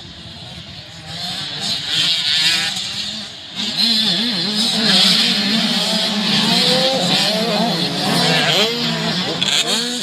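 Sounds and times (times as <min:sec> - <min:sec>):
motocross bike engines revving: 0:00.0 - 0:10.0.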